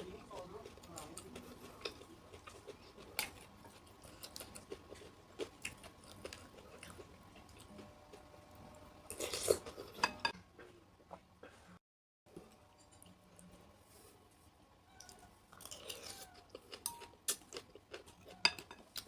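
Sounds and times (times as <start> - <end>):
crunchy chewing: 0.0 - 8.3, 15.0 - 19.0
spoon clinking against bowl: 16.8 - 17.1, 18.3 - 18.8.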